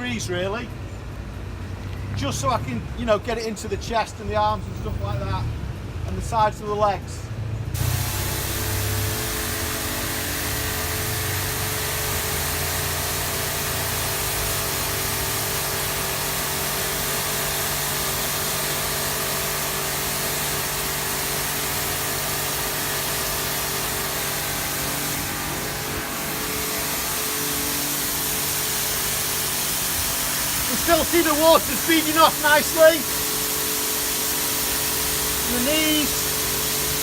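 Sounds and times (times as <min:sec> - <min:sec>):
pressure washer motor humming: 0:07.8 - 0:37.0
water jet hissing: 0:07.8 - 0:37.0.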